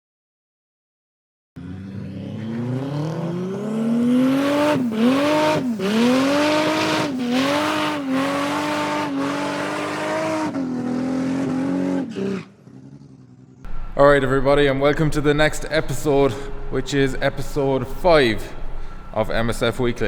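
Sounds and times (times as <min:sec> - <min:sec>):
car engine revving: 0:01.6 - 0:19.8.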